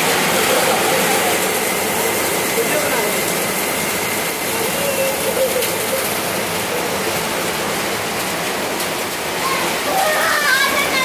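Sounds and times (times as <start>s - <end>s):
heavy rain on a metal roof: 0.0s - 11.0s.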